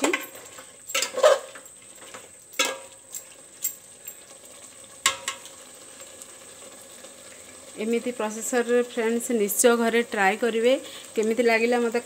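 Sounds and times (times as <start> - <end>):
chicken sizzling in a pot: 0.0 - 12.0
wooden spatula scraping a pot: 0.2 - 2.3.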